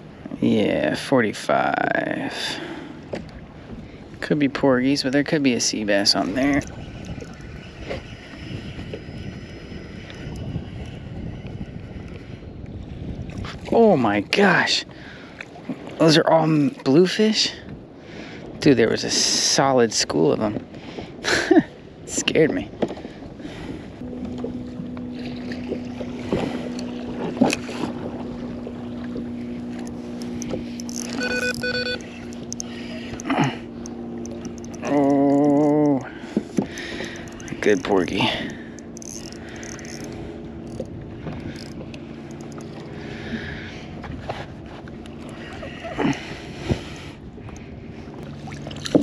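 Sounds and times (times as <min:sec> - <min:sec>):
low electric hum: 0:00.0 - 0:16.4, 0:23.1 - 0:49.0
wind buffeting microphone: 0:02.0 - 0:16.0, 0:32.0 - 0:49.0
water washing against kayak hull: 0:22.6 - 0:49.0.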